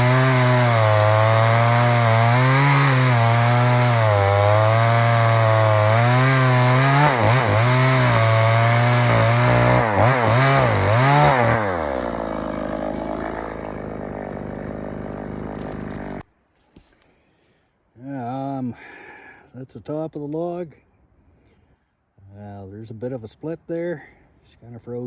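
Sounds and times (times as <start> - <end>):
chainsaw cutting log: 0.0 - 16.2.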